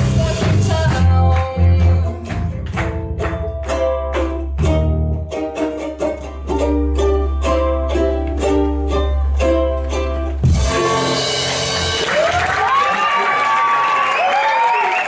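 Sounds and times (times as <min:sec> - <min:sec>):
strummed chords: 0:00.0 - 0:12.2
steady bass: 0:00.0 - 0:12.4
live band playing: 0:00.0 - 0:12.8
audience applause: 0:11.9 - 0:15.0.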